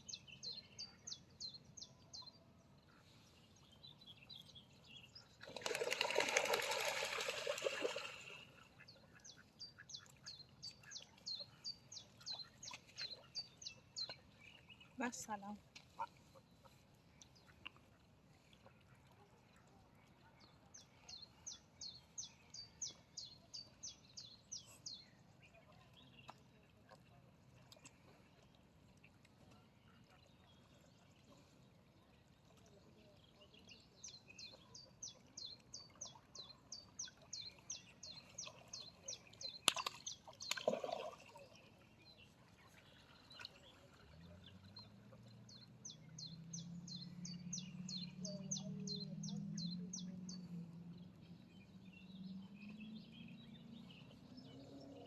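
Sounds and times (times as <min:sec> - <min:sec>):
songbird chirping: 0:32.1 - 0:55.0.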